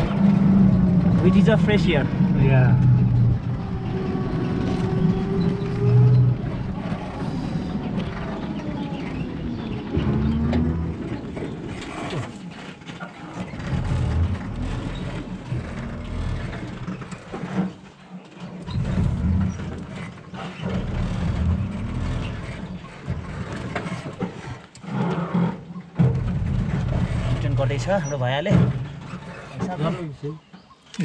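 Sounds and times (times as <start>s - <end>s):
wind buffeting on microphone: 0.0s - 12.5s
auto rickshaw engine: 0.0s - 31.0s
road noise: 0.0s - 31.0s.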